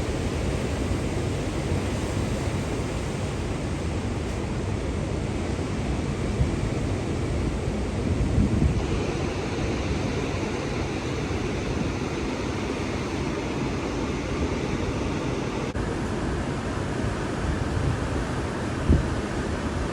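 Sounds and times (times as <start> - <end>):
ocean surf breaking: 0.0 - 19.9
wind buffeting microphone: 5.7 - 13.7, 17.0 - 19.9.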